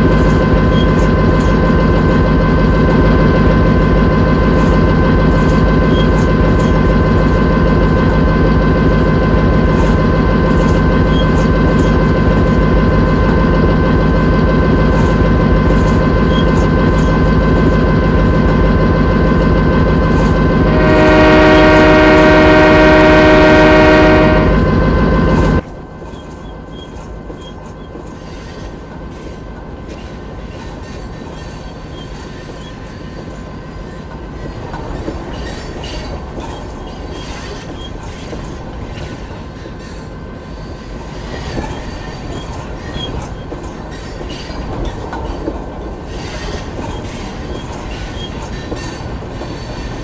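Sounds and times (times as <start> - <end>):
locomotive rumble and whine: 0.0 - 50.0
train horn: 20.6 - 25.6.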